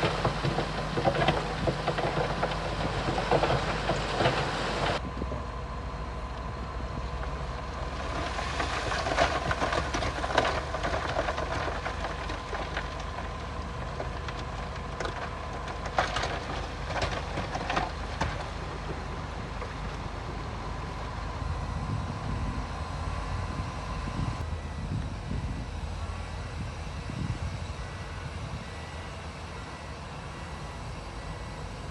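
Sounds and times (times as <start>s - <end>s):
bulldozer diesel engine running: 0.0s - 31.9s.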